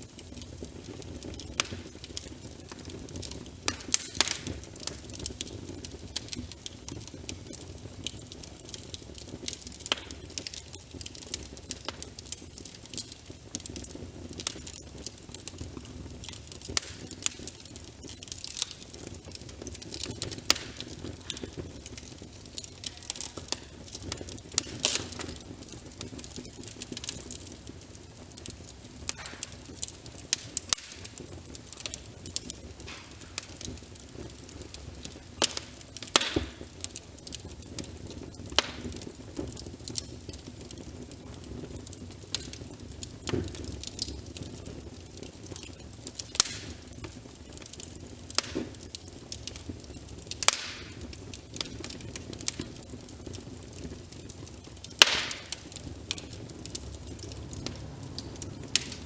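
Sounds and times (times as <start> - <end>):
wood fire crackling: 0.0 - 59.0
rain hissing: 54.1 - 59.0.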